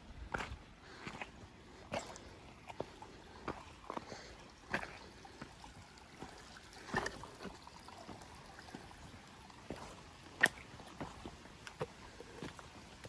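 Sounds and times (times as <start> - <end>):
footsteps crunching on trail: 0.0 - 13.0.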